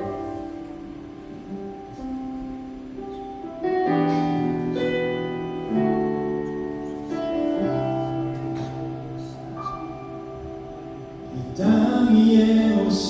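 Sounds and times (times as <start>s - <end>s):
keyboard playing slow chords: 0.0s - 13.0s.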